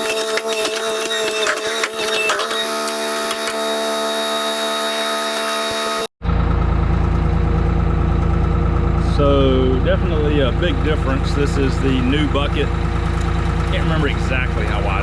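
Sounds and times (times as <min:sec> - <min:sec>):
mechanical whirr with clicks: 0:00.0 - 0:03.8
skid steer engine idling: 0:06.2 - 0:15.0.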